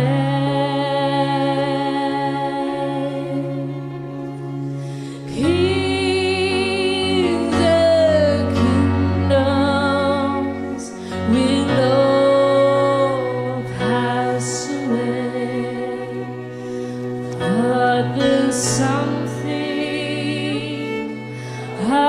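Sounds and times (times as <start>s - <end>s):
sustained instrumental chords: 0.0s - 22.0s
woman singing with vibrato: 5.3s - 16.5s, 17.4s - 22.0s.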